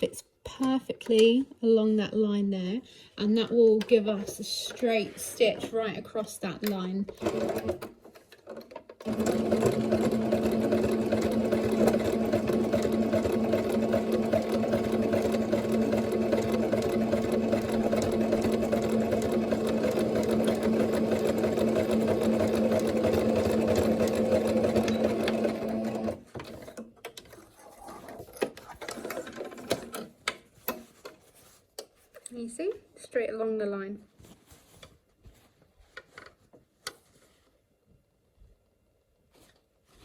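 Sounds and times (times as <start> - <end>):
sewing machine running: 7.2 - 7.9, 9.0 - 26.7.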